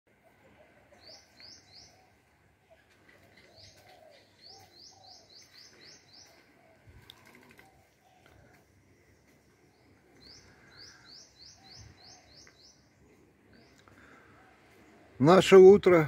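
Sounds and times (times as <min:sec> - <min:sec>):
softer lower bird calls: 0:00.1 - 0:15.2
high bird chirps: 0:03.4 - 0:06.5.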